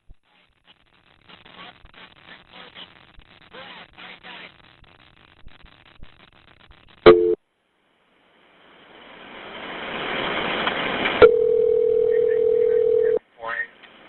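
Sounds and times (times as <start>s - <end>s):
steady telephone tone: 7.1s - 7.4s, 11.2s - 13.2s
telephone line hiss: 7.1s - 7.4s, 11.2s - 13.2s
two-note dial tone: 7.1s - 7.4s, 11.2s - 13.2s.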